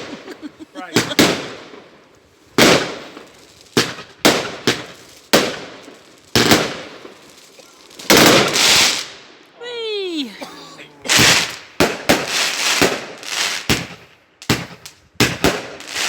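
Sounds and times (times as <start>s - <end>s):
firework bangs with echo: 0.9s - 1.9s, 2.6s - 7.3s, 8.0s - 9.1s, 11.1s - 16.0s.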